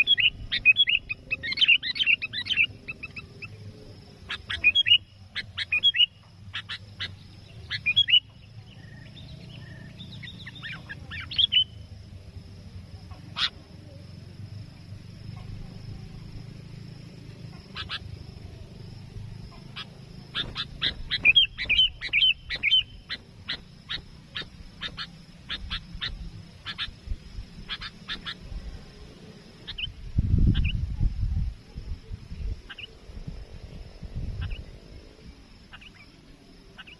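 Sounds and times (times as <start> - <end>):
bird calling: 0.0 - 11.9, 12.9 - 14.2, 17.3 - 30.8, 34.4 - 34.8, 35.6 - 36.9.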